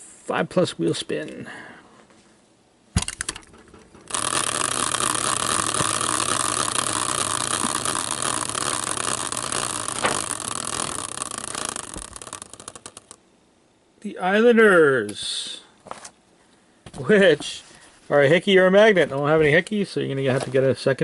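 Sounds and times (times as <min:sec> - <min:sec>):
prize wheel pointer clicking: 0:03.0 - 0:13.2.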